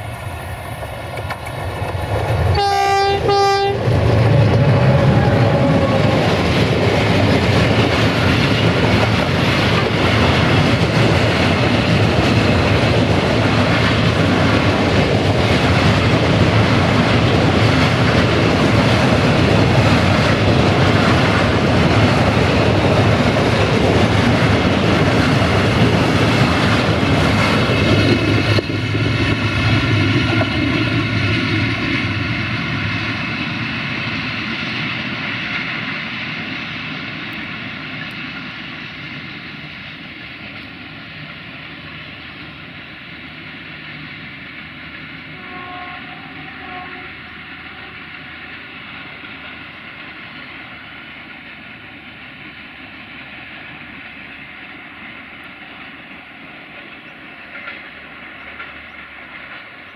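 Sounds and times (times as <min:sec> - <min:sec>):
freight train wheels rumbling on rails: 0:00.0 - 0:59.9.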